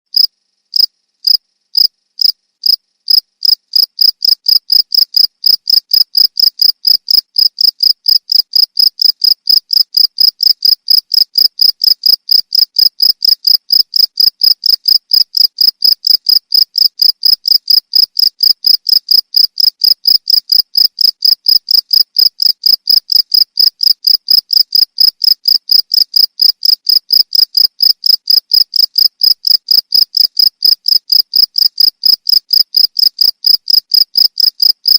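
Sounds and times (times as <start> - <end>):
cricket chirping: 0.1 - 34.9.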